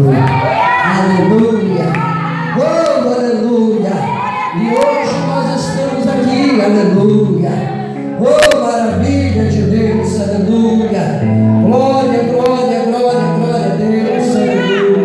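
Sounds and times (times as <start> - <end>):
congregation singing a hymn: 3.8 - 9.0.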